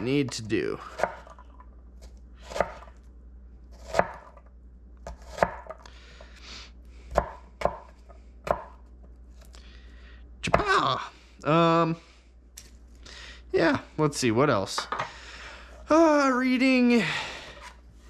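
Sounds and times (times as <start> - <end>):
knife chopping onion on board: 0.9 - 1.4, 2.5 - 2.9, 3.8 - 4.4, 5.0 - 5.8, 7.1 - 8.8.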